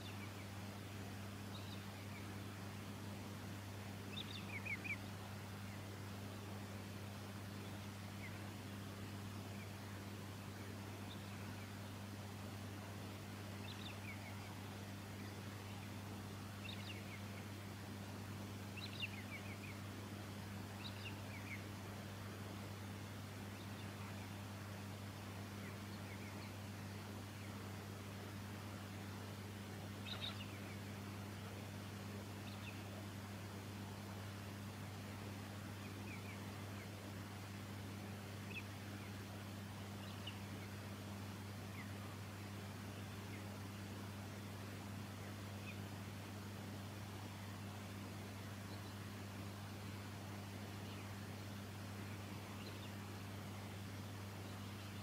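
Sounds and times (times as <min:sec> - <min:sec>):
bird chirping: 0:00.0 - 0:00.6, 0:01.4 - 0:02.4, 0:04.0 - 0:05.9, 0:10.4 - 0:11.9, 0:13.6 - 0:16.0, 0:16.6 - 0:17.5, 0:18.7 - 0:19.8, 0:20.8 - 0:21.7, 0:30.0 - 0:31.0, 0:38.4 - 0:39.2, 0:39.8 - 0:40.8, 0:52.0 - 0:53.2
steady low hum: 0:00.0 - 0:55.0
bird twittering chirps: 0:01.5 - 0:02.3, 0:04.1 - 0:05.1, 0:30.0 - 0:30.9.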